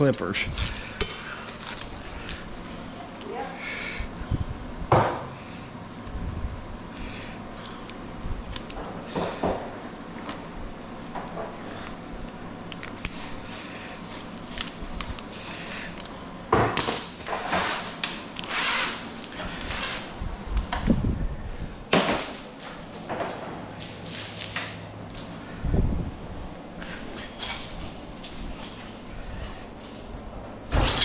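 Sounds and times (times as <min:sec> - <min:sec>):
small metal clinks and knocks: 0:14.1 - 0:14.8.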